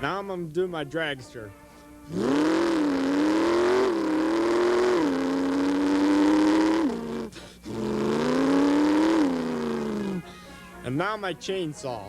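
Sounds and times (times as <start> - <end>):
man imitating engine sound: 2.1 - 10.4.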